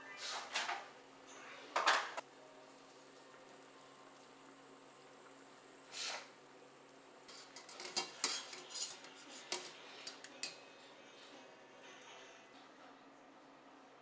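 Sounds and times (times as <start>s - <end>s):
utensil scraping dish: 7.3s - 10.6s
utensils clinking on dishware: 7.4s - 10.6s.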